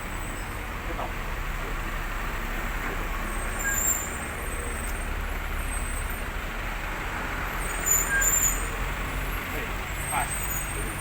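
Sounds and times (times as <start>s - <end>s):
heavy truck engine rumbling: 0.0s - 11.0s
road traffic noise: 0.0s - 11.0s
high squeal: 3.5s - 4.2s, 7.7s - 8.7s.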